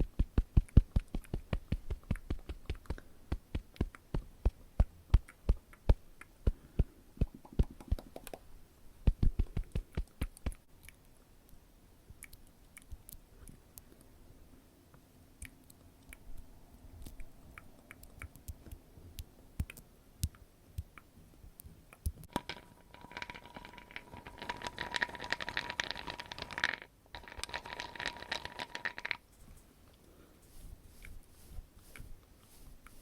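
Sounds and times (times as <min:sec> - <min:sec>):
crackling and rubbing: 0:00.0 - 0:08.4, 0:20.8 - 0:33.0.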